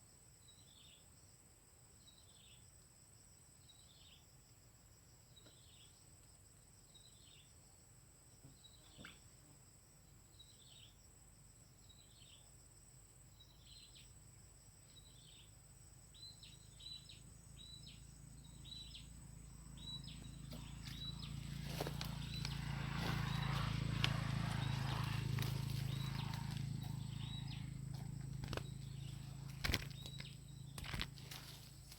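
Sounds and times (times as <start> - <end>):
high insect whine: 9.5 - 31.9
bird giving high calls: 20.5 - 30.4
rustling: 28.4 - 31.9.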